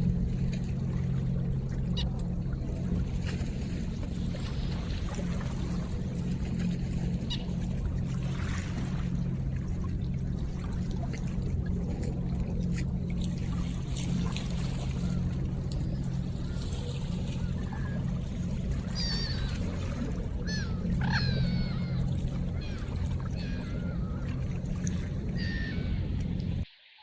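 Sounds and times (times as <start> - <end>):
river water running: 0.0 - 26.7
water splashes and drips: 0.4 - 21.1
bird calls: 7.1 - 7.7, 14.6 - 26.6.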